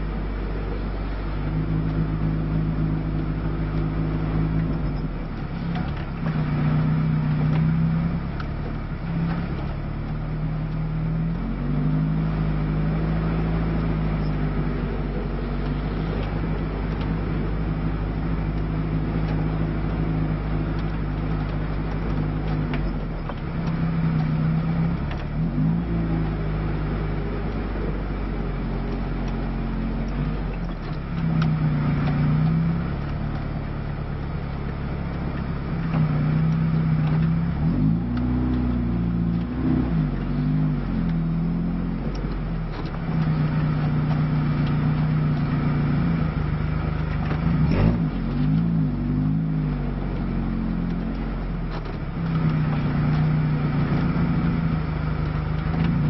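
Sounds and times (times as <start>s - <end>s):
car engine revving at low speed: 0.0s - 56.0s.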